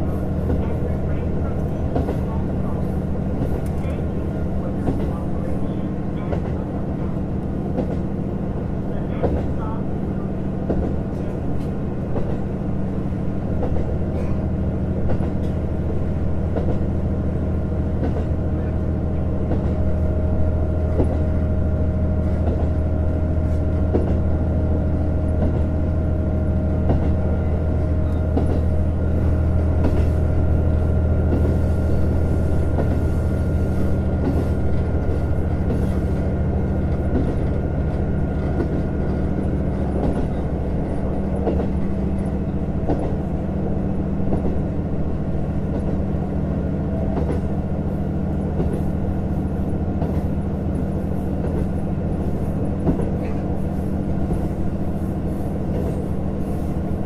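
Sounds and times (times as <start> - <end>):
rail noise: 0.0 - 57.0
train wheel clicks: 30.8 - 43.4, 47.1 - 47.5.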